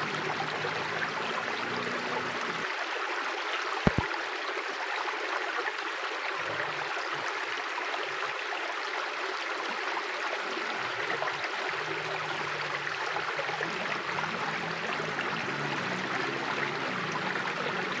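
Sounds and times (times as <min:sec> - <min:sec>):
water rushing over rocks: 0:00.0 - 0:02.8, 0:03.8 - 0:04.2, 0:10.3 - 0:18.0.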